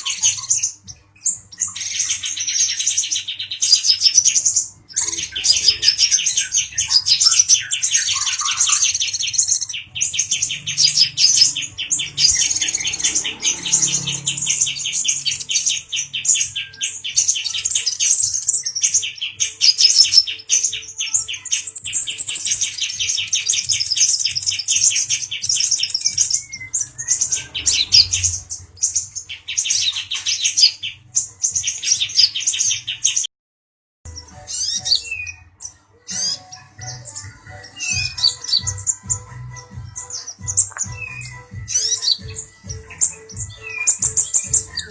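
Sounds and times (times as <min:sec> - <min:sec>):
bird singing fast high trills: 0:00.0 - 0:33.2, 0:34.2 - 0:35.5.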